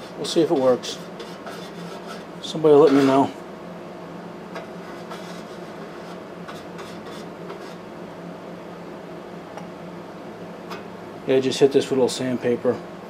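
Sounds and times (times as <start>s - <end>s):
steady machine hum: 0.0s - 13.0s
sandpaper rubbing on metal: 0.9s - 2.3s, 4.8s - 7.8s.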